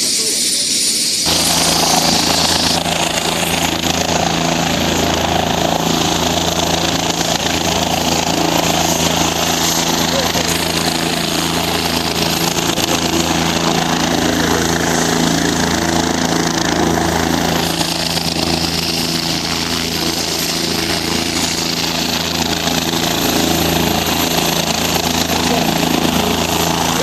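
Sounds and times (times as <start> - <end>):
engine drone: 0.0 - 27.0
road traffic noise: 1.2 - 20.0.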